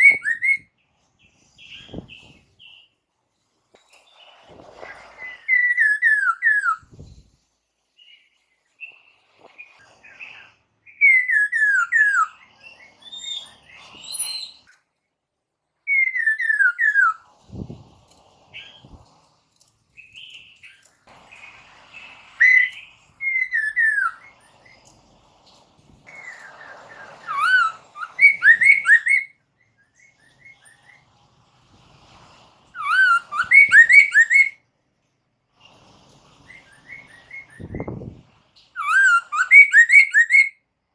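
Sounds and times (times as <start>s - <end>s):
bird singing whistled phrases: 0.0s - 0.7s, 5.2s - 7.0s, 10.9s - 14.7s, 15.9s - 17.2s, 22.4s - 24.3s, 26.1s - 30.7s, 32.8s - 34.6s, 38.8s - 40.6s.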